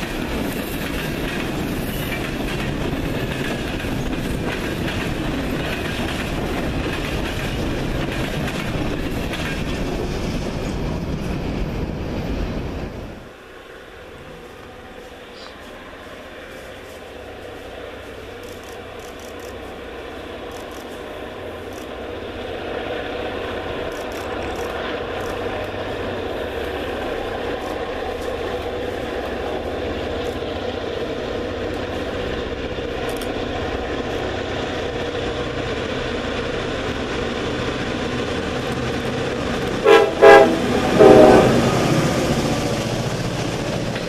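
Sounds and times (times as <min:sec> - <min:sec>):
diesel train engine and rail noise: 0:00.0 - 0:44.0
train horn blasts: 0:39.8 - 0:42.0.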